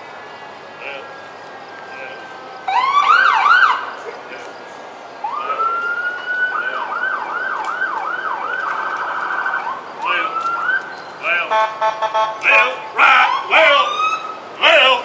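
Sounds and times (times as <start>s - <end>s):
electronic emergency siren: 1.5s - 3.9s, 5.2s - 10.9s, 11.5s - 14.4s.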